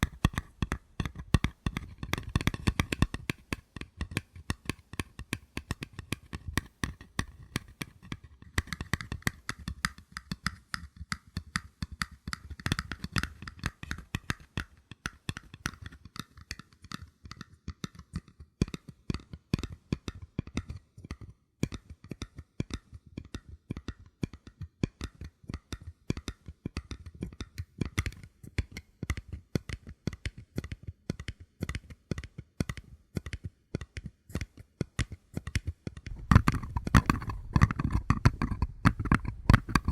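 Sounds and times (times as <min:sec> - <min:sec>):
paper cups being tapped: 0:00.0 - 0:17.0, 0:32.6 - 0:39.9.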